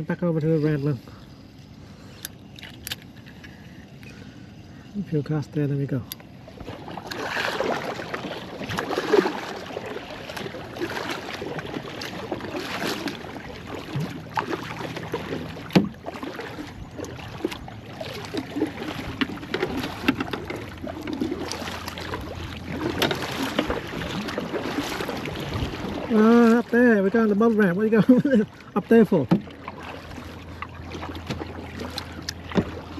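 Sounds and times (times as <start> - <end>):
paddle strokes splashing: 6.4 - 32.9
sharp knocks on canoe: 15.5 - 16.2, 18.2 - 22.1, 22.8 - 23.9, 29.2 - 29.9, 31.2 - 32.8.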